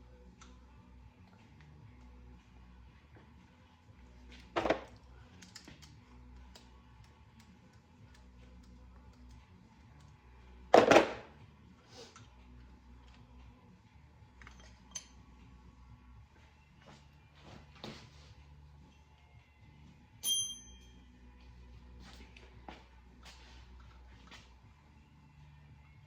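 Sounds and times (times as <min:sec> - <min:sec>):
metal parts and tools clinking: 0:14.3 - 0:15.3.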